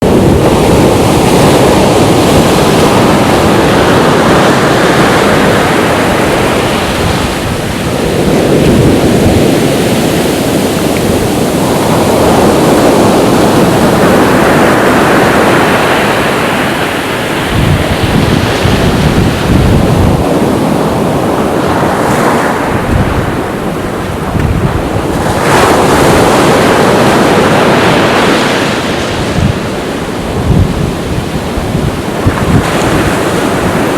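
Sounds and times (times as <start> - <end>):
waves breaking on a beach: 0.0 - 33.9
wind buffeting microphone: 0.0 - 33.9.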